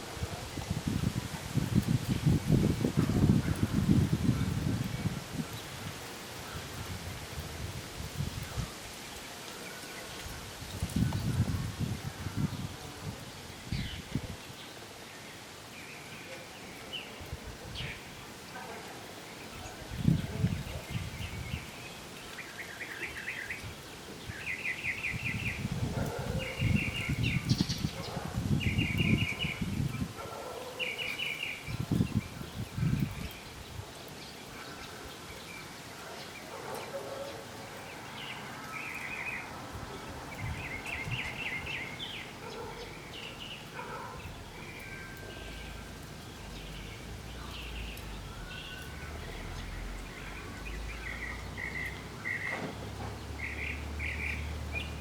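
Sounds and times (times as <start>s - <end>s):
wind gusting on microphone: 0.0s - 9.0s, 10.1s - 14.6s, 19.5s - 21.9s, 23.4s - 30.6s, 31.4s - 34.0s, 39.1s - 55.0s.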